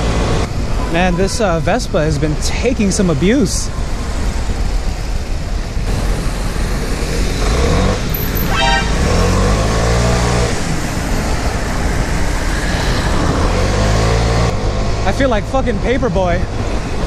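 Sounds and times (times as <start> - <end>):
city traffic: 0.0 - 17.0
horn beep: 8.2 - 9.6.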